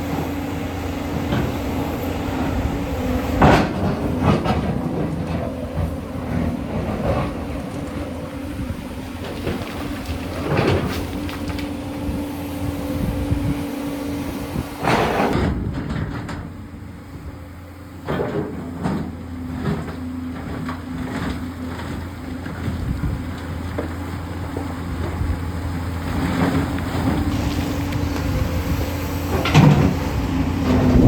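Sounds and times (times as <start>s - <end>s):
excavator diesel engine running: 0.0s - 31.0s
bucket scraping against rock: 3.4s - 11.9s.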